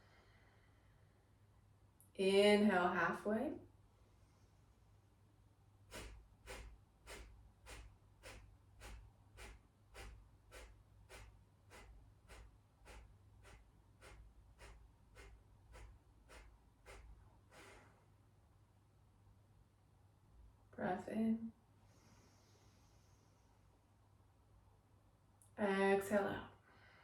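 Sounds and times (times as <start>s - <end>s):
forceful exhales through the nose: 5.9s - 18.1s
long full exhale: 5.9s - 18.1s, 21.8s - 23.6s.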